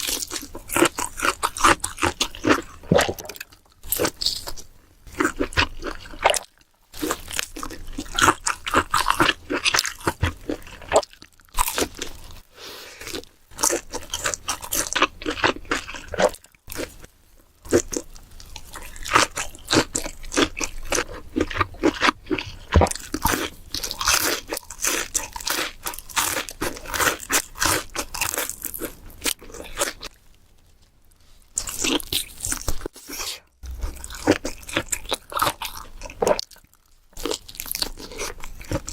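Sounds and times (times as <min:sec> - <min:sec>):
crunchy bites and chewing: 0:00.0 - 0:12.4, 0:13.0 - 0:30.2, 0:31.5 - 0:38.9.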